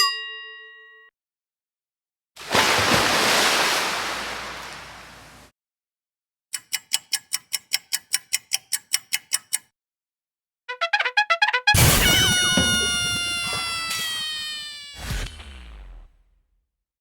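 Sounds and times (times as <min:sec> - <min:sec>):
sharp ticks: 0:06.5 - 0:09.7.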